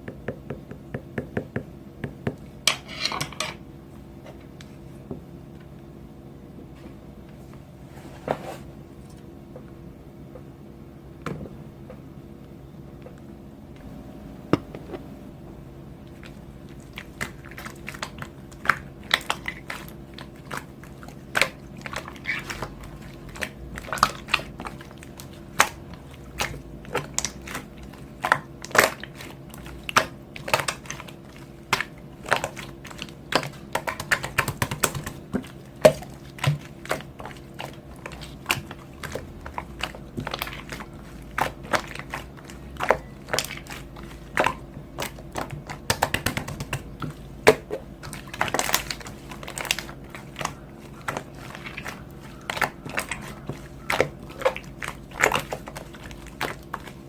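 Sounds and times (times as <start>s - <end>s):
steady low hum: 0.0s - 57.0s
crunchy chewing: 16.1s - 57.0s.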